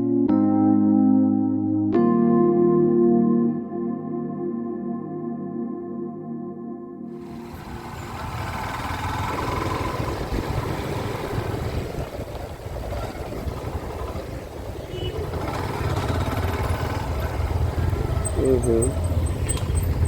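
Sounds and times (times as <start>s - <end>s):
motorcycle engine rumble: 7.2s - 20.0s
wind noise on microphone: 8.1s - 16.5s.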